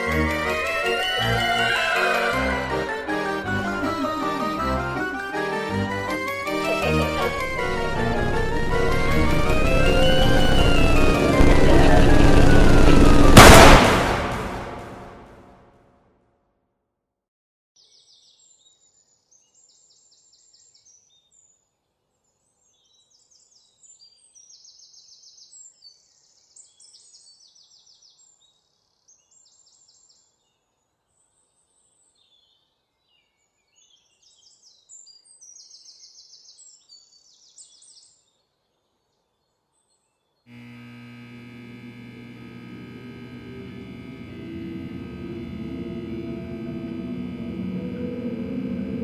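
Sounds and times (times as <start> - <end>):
music with low held drone: 0.0 - 15.3, 40.5 - 49.0.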